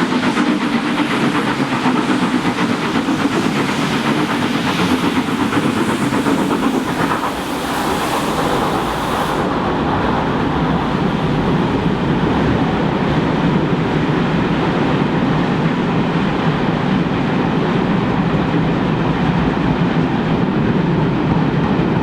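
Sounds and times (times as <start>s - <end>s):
steam hiss: 0.0s - 11.5s
steam engine exhaust beat: 0.0s - 22.0s.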